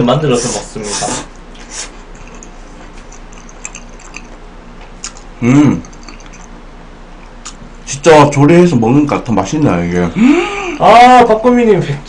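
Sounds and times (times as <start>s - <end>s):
wet chewing mouth clicks: 1.6s - 6.6s, 7.2s - 7.6s.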